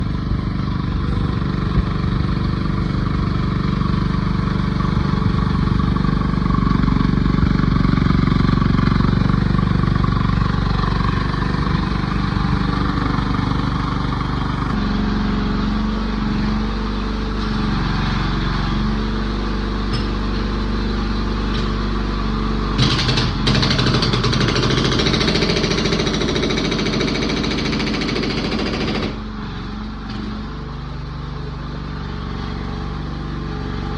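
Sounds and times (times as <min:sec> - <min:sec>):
excavator engine running: 0:00.0 - 0:33.9
hydraulic breaker breaking ground: 0:22.7 - 0:29.3.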